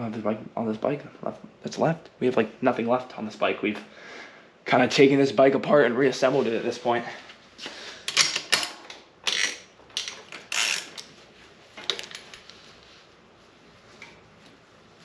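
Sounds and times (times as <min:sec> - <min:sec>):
faint steady hum: 0:00.0 - 0:15.0
mechanical clicks of tools: 0:08.1 - 0:11.1.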